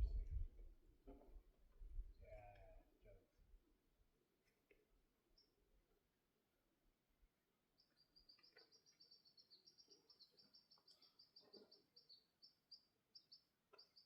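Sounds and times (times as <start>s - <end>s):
high bird chirps: 7.8s - 14.0s.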